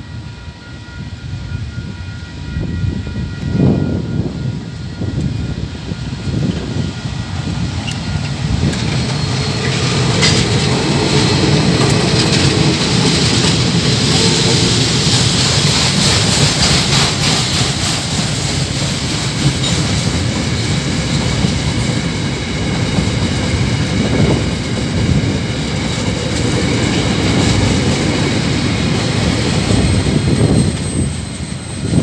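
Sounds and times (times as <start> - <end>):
freight wagons rolling on rails: 5.1 - 32.0
clickety-clack of wheels: 7.8 - 32.0.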